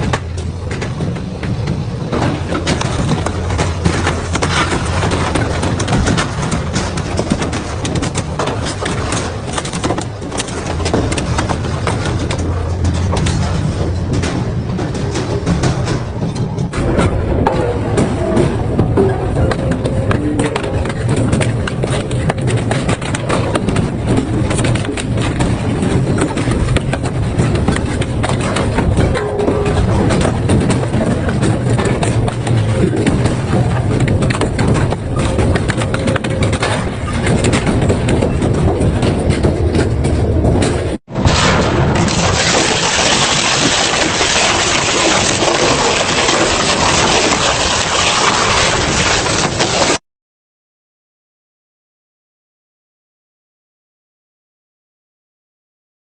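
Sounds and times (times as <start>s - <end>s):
industrial shredder rumbling: 0.0s - 50.0s
metal cracking and snapping: 19.6s - 50.0s.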